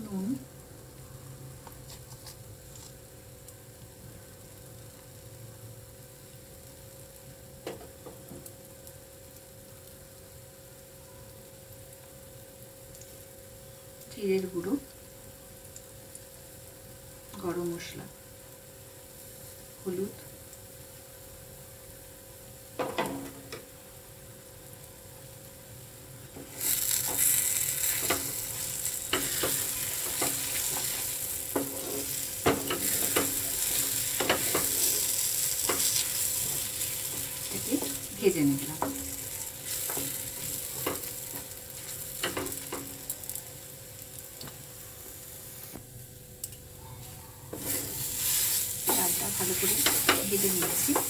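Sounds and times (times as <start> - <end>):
paste sizzling in hot oil: 22.6 - 45.8, 47.5 - 51.0
wooden spatula scraping pan: 27.9 - 38.1, 47.5 - 51.0.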